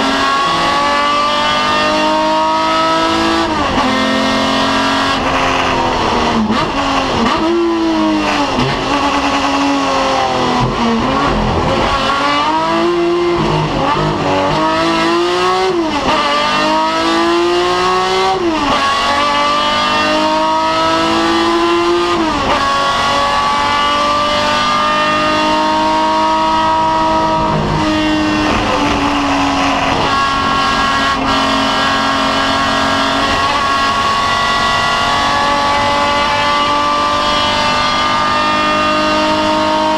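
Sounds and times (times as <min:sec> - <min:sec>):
racing car engine accelerating: 0:00.0 - 0:39.9.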